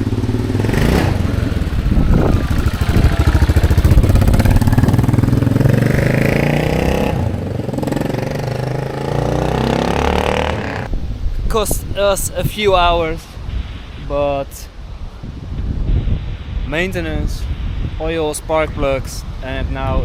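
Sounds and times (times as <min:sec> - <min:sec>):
motorcycle engine revving: 0:00.0 - 0:10.9.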